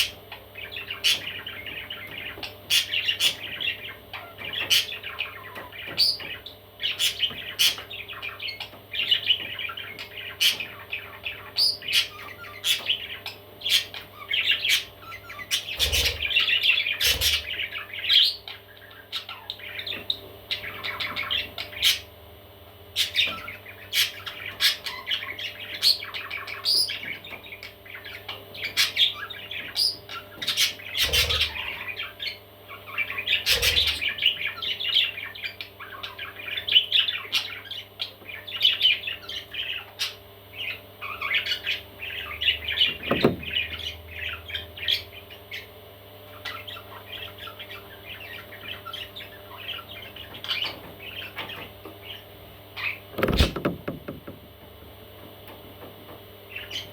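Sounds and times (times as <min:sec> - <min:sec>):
baby parrots chirping and squawking: 0:00.0 - 0:22.2, 0:22.9 - 0:53.7, 0:56.5 - 0:56.9
dull thumps: 0:43.0 - 0:43.6, 0:53.1 - 0:54.5.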